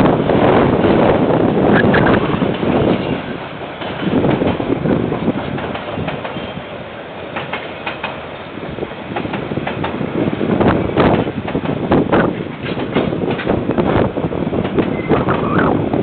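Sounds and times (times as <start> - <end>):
train running noise: 0.0 - 16.0
wheels clicking over rail joints: 1.8 - 8.5, 10.6 - 15.8.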